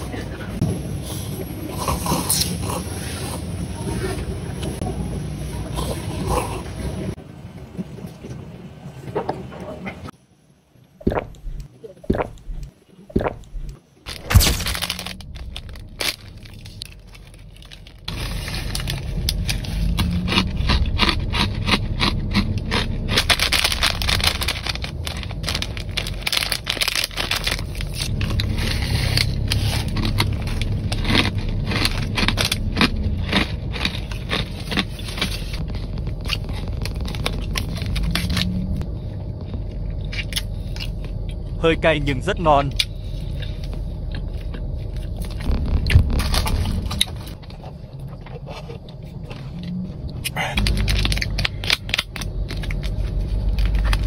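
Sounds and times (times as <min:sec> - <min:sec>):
low steady rumble: 0:10.0 - 0:54.0
crunchy snack chewing: 0:11.1 - 0:38.7.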